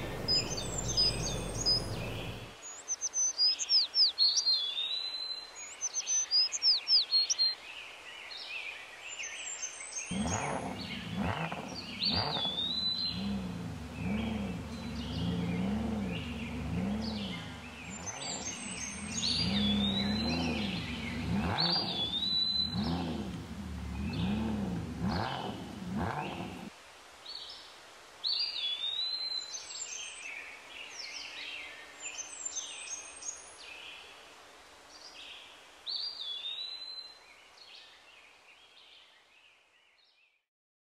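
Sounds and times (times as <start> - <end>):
low rising and falling tone: 0.0 - 2.5, 11.7 - 26.7
birds chirping: 0.0 - 7.6, 9.1 - 26.7.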